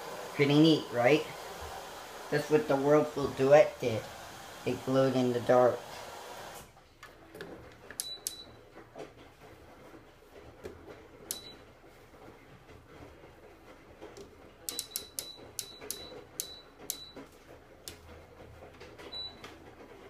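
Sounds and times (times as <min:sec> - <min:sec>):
washing machine humming: 0:00.0 - 0:20.0
sharp ringing clicks: 0:08.0 - 0:08.5, 0:11.3 - 0:11.6, 0:14.7 - 0:17.2.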